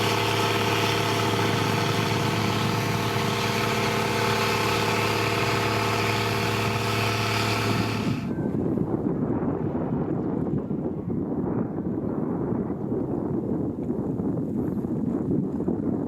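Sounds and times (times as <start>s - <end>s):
diesel engine running: 0.0s - 8.4s
wind rumbling on microphone: 0.0s - 16.0s.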